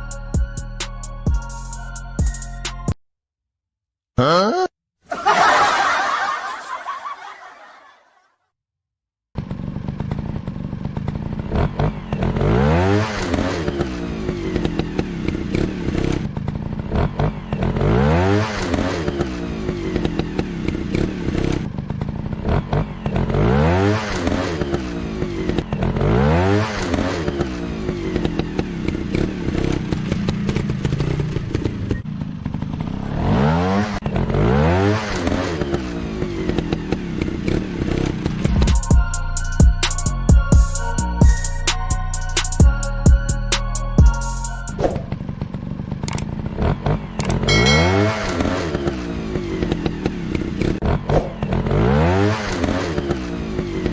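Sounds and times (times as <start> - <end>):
motorbike engine revving: 9.4 - 42.4, 44.0 - 53.9.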